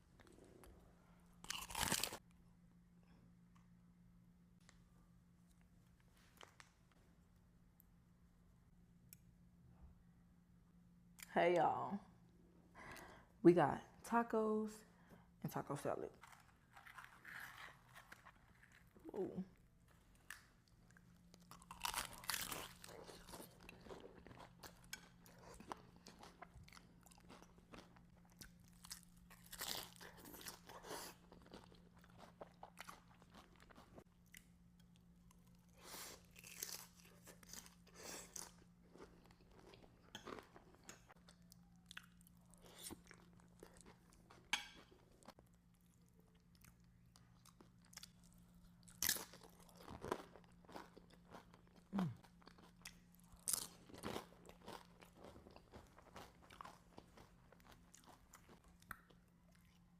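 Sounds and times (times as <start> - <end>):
faint low hum: 0.0 - 59.9
crunchy bites and chewing: 1.4 - 2.2, 20.2 - 34.5, 36.2 - 44.1, 47.8 - 59.8.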